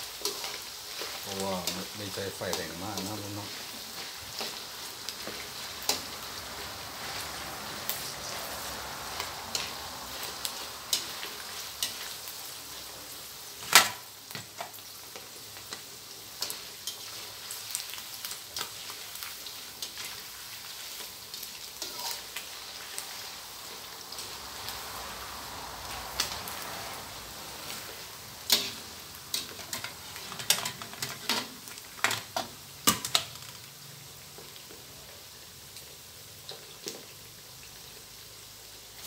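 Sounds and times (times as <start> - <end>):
fish sizzling in oil: 0.0 - 39.0
metal spatula scraping a wok: 0.1 - 12.3, 19.8 - 23.4, 26.1 - 31.6.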